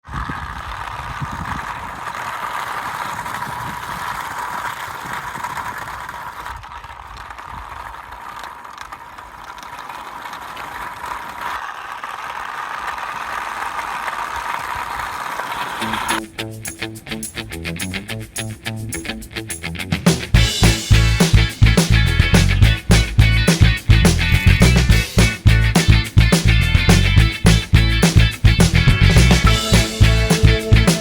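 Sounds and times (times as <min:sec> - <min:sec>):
drive rattling: 0:15.8 - 0:31.0.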